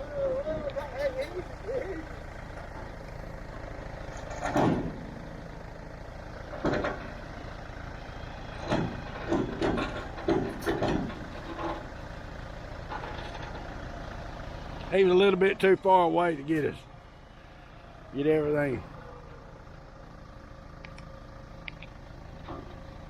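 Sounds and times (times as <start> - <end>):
truck engine idling: 0.0 - 23.0
metallic clanks and knocks: 4.1 - 5.2, 6.5 - 7.2, 8.6 - 11.9.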